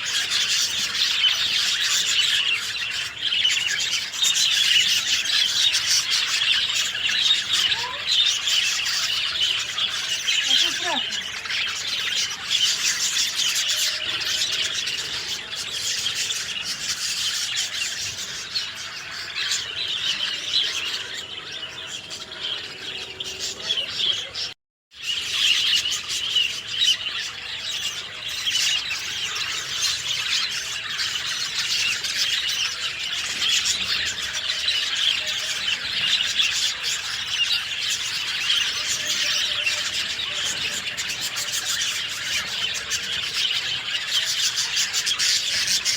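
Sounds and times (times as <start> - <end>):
songbirds chirping: 0.0 - 45.9.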